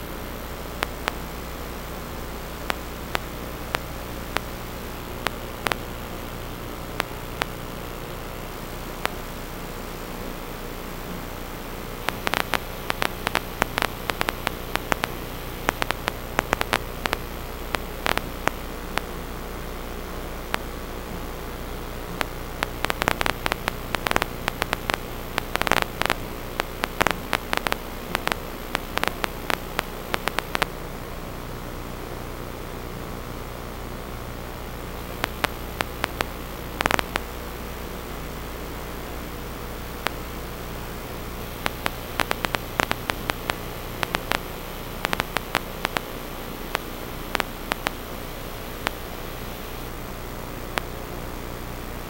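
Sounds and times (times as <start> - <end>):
electrical hiss: 0.0 - 30.8, 34.7 - 52.0
mains hum: 0.0 - 52.0
sharp clicks and crackles: 0.8 - 1.2, 2.6 - 8.2, 12.0 - 19.2, 20.5 - 20.7, 22.2 - 30.8, 35.2 - 37.3, 41.6 - 49.9, 50.7 - 51.0.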